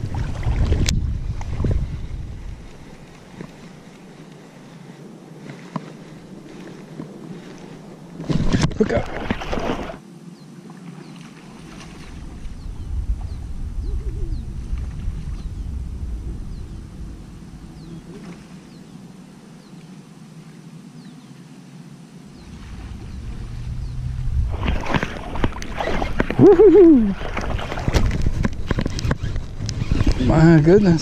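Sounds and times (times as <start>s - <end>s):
low uneven rumble: 11.7s - 19.8s, 22.3s - 31.0s
faint bird chirps: 12.4s - 14.6s, 15.3s - 20.0s.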